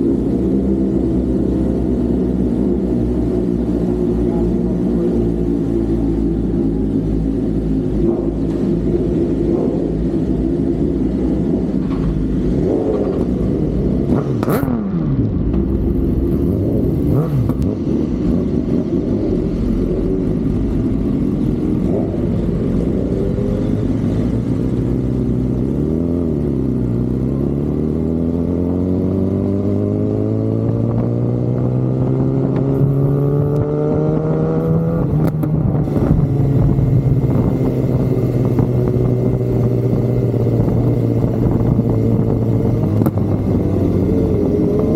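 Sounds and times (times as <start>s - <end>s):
motorcycle engine accelerating: 0.0s - 44.9s
racing motorcycle pass-by: 25.2s - 44.9s.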